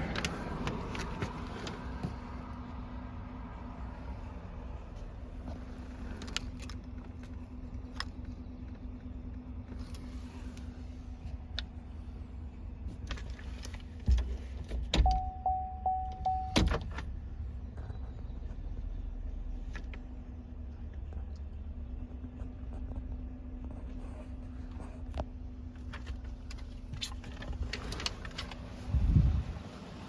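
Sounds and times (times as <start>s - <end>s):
warning chime beeping: 15.1s - 16.6s.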